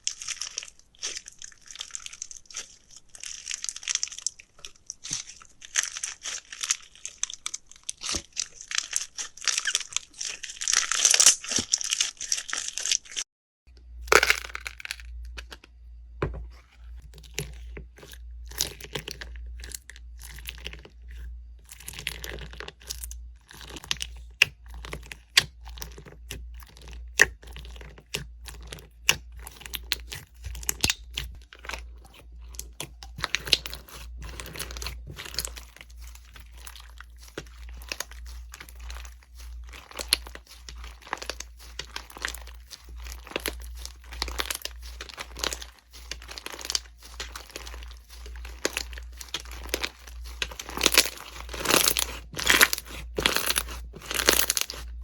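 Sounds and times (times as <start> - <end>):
slime crackling when pressed: 33.2 - 55.0.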